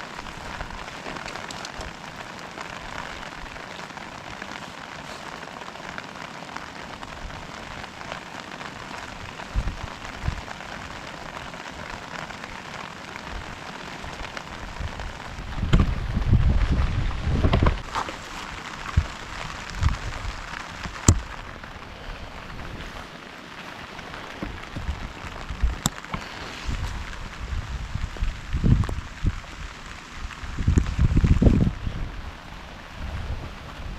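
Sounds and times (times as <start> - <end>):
heavy rain falling: 0.0 - 33.9
low thumps: 15.5 - 17.9.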